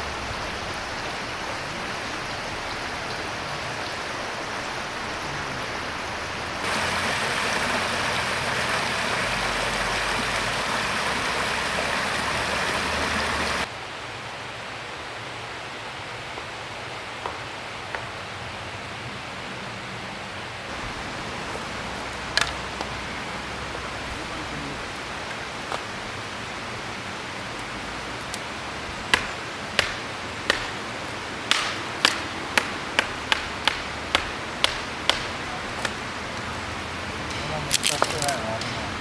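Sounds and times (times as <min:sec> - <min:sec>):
flowing river water: 0:00.0 - 0:13.7, 0:20.6 - 0:39.0
sharp knocks: 0:28.2 - 0:36.1.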